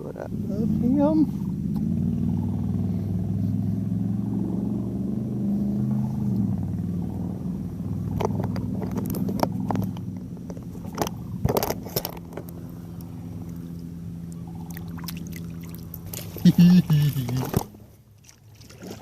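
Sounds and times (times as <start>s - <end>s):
engine drone: 0.0s - 19.0s
sharp clicks and rattles: 8.1s - 13.6s.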